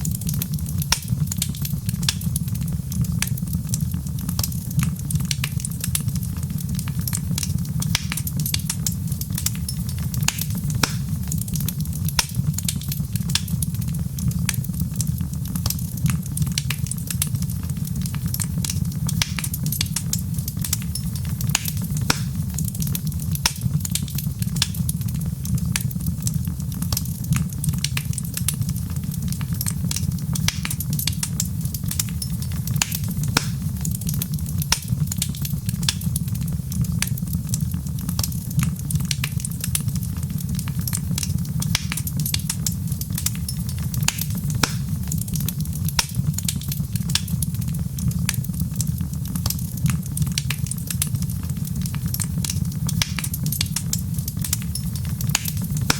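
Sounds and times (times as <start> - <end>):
fireplace fire crackling: 0.0 - 55.9.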